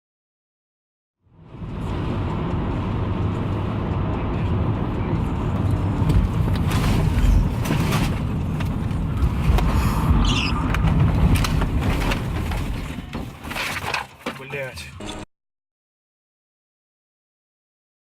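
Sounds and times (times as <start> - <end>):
car engine and road noise: 1.2 - 15.3.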